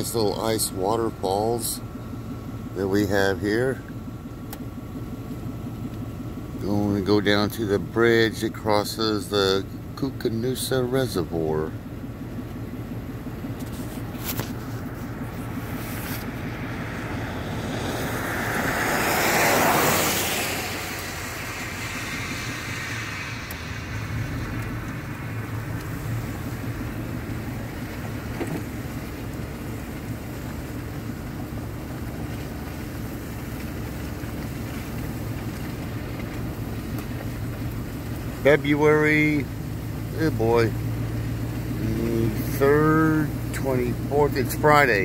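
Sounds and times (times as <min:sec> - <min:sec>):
car road noise: 0:00.0 - 0:45.0
loud rush of air: 0:15.1 - 0:26.6.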